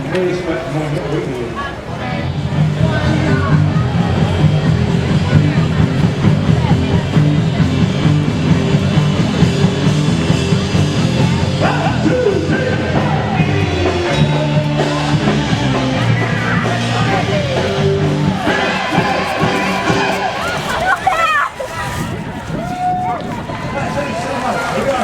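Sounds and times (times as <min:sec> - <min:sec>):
live rock band playing: 0:04.4 - 0:20.2
person singing: 0:11.6 - 0:20.7.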